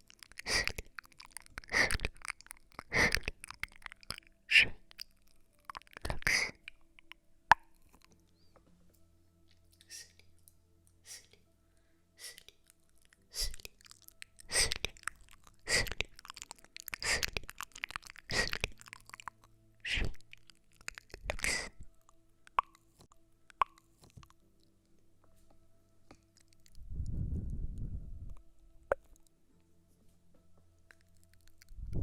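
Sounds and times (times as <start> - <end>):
crisp asmr trigger noises: 0.0 - 8.7, 12.2 - 24.4.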